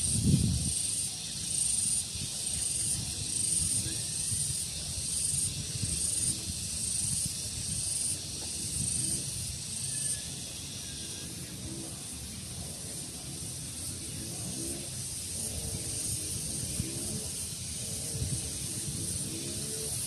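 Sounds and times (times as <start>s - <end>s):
insects buzzing: 0.0s - 20.0s
wind rumble on microphone: 0.0s - 20.0s.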